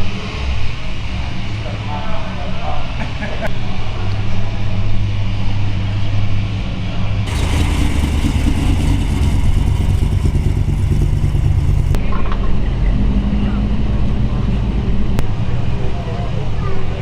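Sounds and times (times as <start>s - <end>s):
car engine running: 7.3s - 12.1s.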